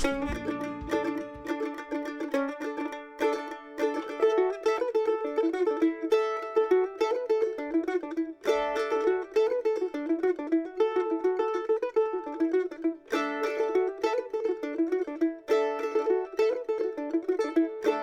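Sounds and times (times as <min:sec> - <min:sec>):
acoustic folk instrumental: 0:00.0 - 0:18.0.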